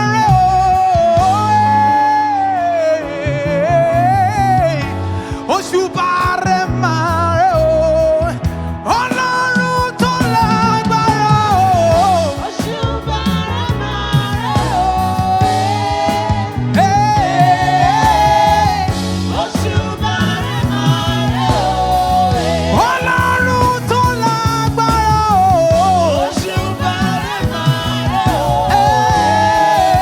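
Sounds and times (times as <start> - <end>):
band with bass and drums: 0.0 - 30.0
person singing lead: 8.9 - 30.0.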